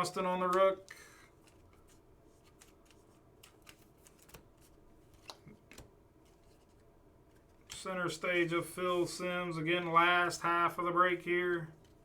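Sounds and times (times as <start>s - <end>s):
trading cards rustling: 0.5s - 7.8s
cards clicking: 5.1s - 5.9s.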